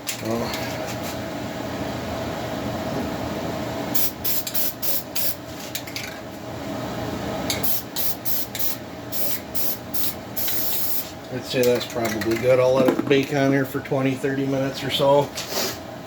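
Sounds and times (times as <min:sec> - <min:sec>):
aerosol paint can spraying: 0:04.0 - 0:05.4, 0:07.6 - 0:11.1.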